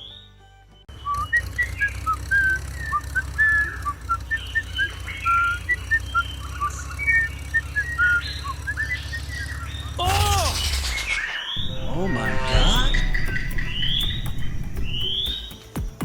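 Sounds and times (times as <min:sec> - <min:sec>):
high whistled chirps: 0:00.9 - 0:15.7
steady low hum: 0:10.2 - 0:15.4.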